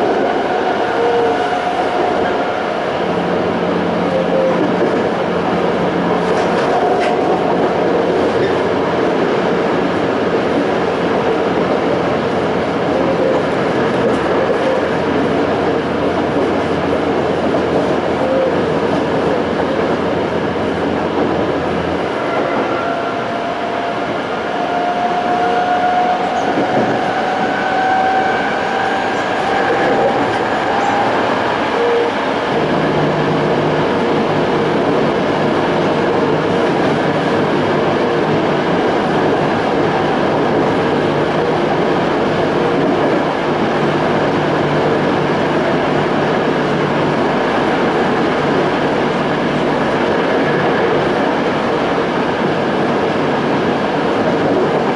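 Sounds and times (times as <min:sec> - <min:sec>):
wheel and rail noise: 0:00.0 - 0:54.9.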